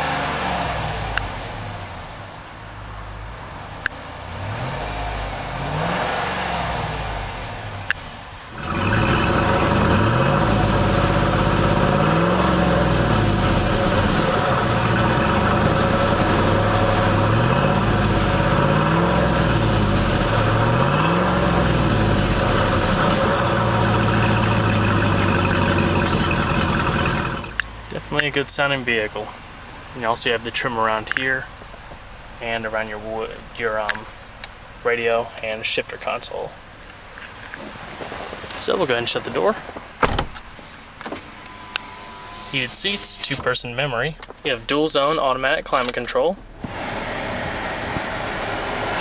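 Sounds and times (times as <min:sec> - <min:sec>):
engine revving: 0:00.0 - 0:02.1, 0:04.2 - 0:29.1, 0:46.6 - 0:49.0.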